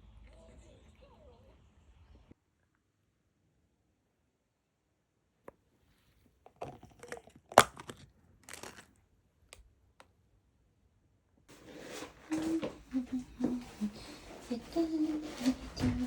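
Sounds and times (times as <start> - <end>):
crinkling and rustling: 6.4 - 8.9, 11.5 - 16.0.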